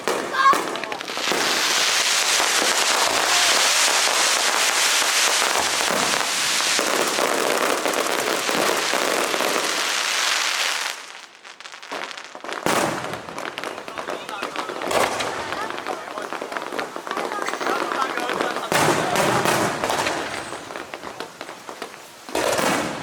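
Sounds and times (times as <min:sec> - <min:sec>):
fireworks crackling: 0:00.0 - 0:23.0
sharp firework report: 0:00.0 - 0:23.0.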